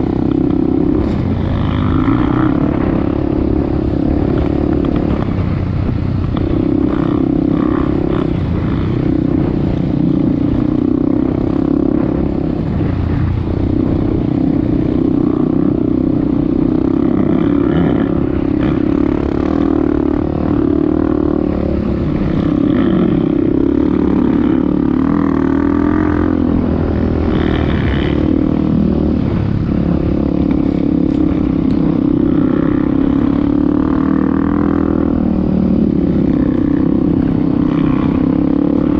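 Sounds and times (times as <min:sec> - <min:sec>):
off-road vehicle engine revving: 0:00.0 - 0:05.5.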